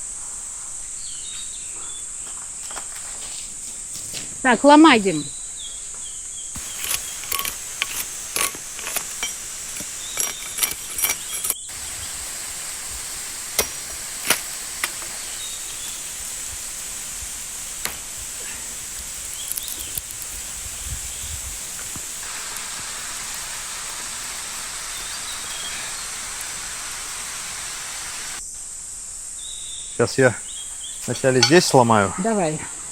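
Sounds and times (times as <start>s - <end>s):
high insect trill: 0.0s - 32.9s
water hissing: 6.6s - 28.4s
sticks snapping: 13.5s - 15.2s, 19.2s - 20.3s.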